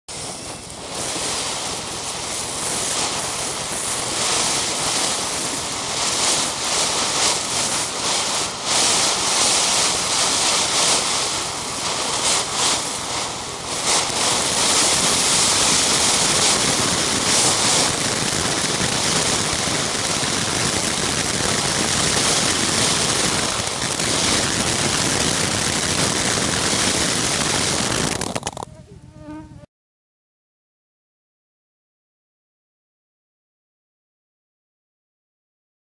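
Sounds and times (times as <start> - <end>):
fountain firework hissing: 0.1 - 28.6
firework crackles: 0.1 - 28.7.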